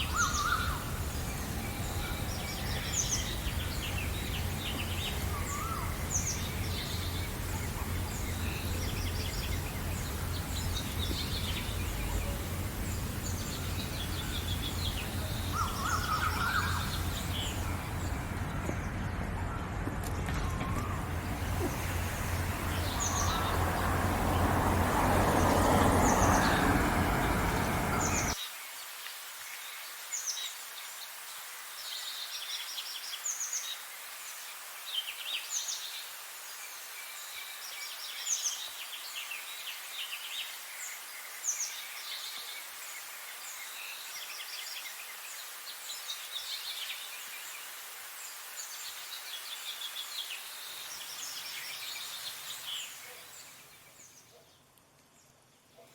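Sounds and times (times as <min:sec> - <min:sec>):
birds chirping and trilling: 0:00.0 - 0:28.4.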